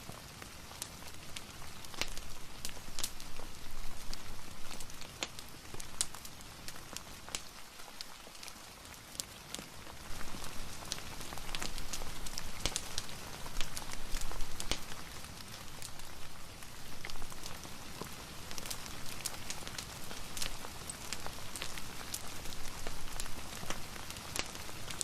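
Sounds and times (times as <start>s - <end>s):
sharp pops and crackles: 0.0s - 25.0s
steady rain: 0.0s - 25.0s.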